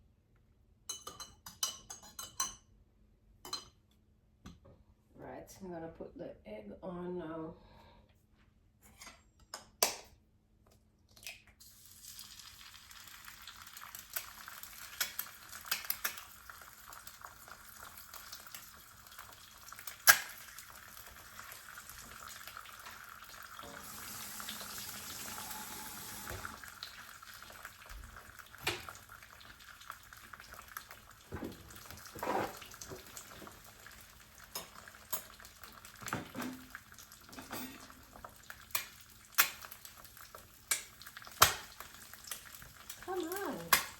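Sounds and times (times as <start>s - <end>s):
egg sizzling in a pan: 11.6s - 43.9s
utensils and dishes clinking: 37.3s - 38.0s.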